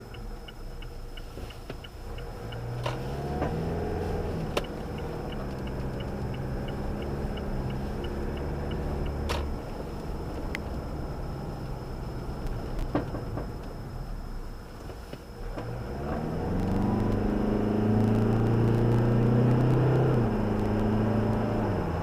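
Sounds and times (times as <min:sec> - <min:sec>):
light fast ticking: 0:00.0 - 0:13.8
car rumble: 0:00.0 - 0:22.0.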